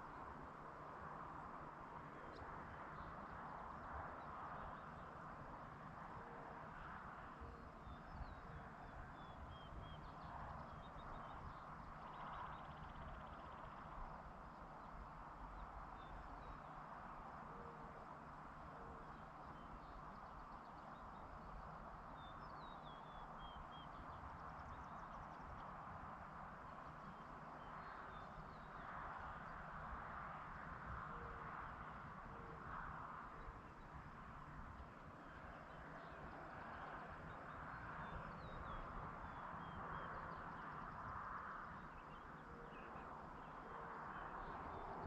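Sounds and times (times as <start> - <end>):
distant songbird singing: 7.4 - 25.8, 26.6 - 29.6, 34.8 - 45.0.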